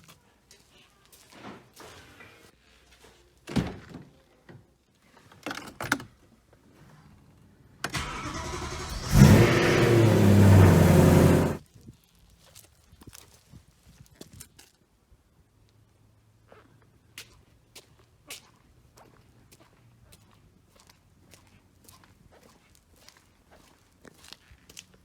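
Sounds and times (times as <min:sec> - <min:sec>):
car engine starting and revving: 0:07.9 - 0:11.6
starter cranking: 0:07.9 - 0:11.6.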